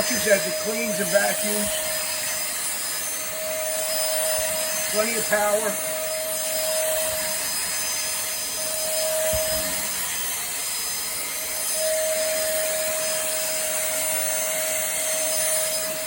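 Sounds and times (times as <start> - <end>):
handheld vacuum on carpet: 0.0 - 16.0.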